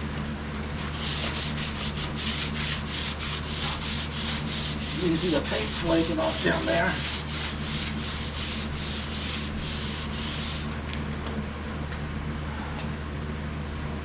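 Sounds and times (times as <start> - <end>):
steady low hum: 0.0 - 13.5
sandpaper sanding metal: 1.0 - 10.8.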